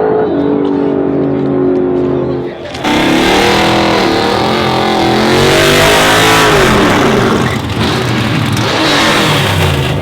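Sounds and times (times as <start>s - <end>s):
truck engine revving: 2.5s - 10.0s.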